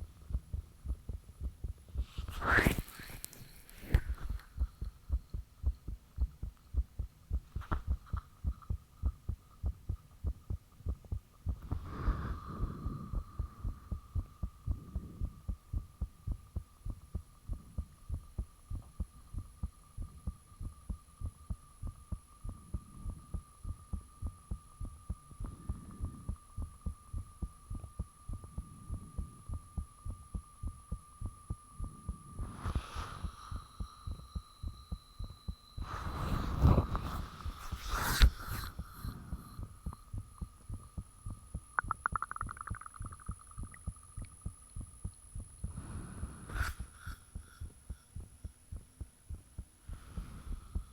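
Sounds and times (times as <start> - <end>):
heartbeat thumps: 0.0 - 2.8, 3.9 - 32.5, 33.4 - 50.9
steady high-pitched tone: 11.8 - 50.9.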